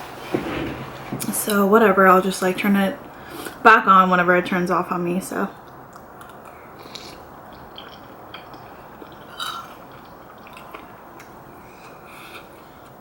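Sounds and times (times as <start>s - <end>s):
steady background hiss: 0.0s - 13.0s
wet mouth eating sounds: 5.7s - 13.0s.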